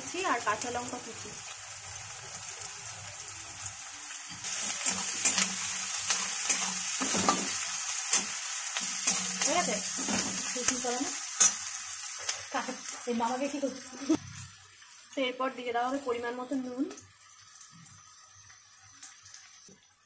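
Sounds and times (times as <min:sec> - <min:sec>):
vegetables sizzling in oil: 0:00.0 - 0:20.0
metal spatula scraping pan: 0:04.4 - 0:12.5.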